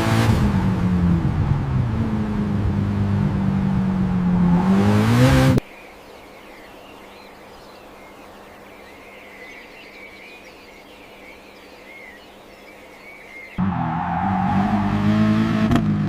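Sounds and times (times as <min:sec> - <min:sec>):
birds chirping: 0:05.0 - 0:13.8.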